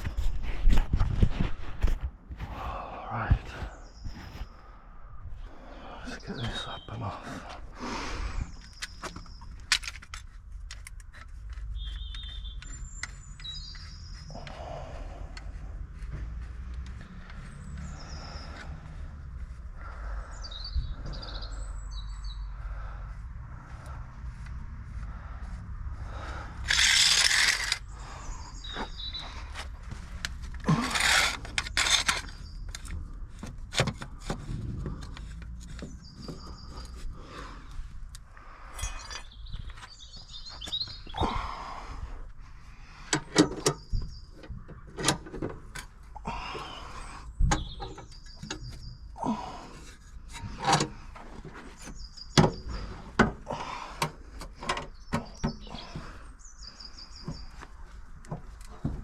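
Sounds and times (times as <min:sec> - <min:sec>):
birds chirping: 0:02.4 - 0:59.0
tools and parts clattering: 0:08.6 - 0:12.4, 0:26.6 - 0:27.9, 0:30.3 - 0:33.0.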